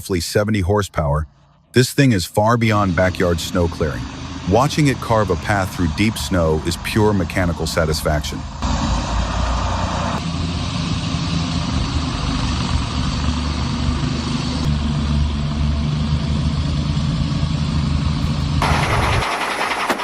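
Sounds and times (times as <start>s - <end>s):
engines droning under load: 0.0s - 20.0s.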